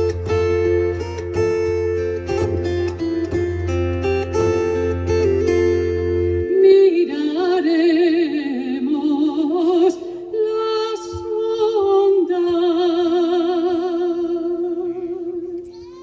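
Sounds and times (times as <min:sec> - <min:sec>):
woman singing with vibrato: 0:06.4 - 0:16.0.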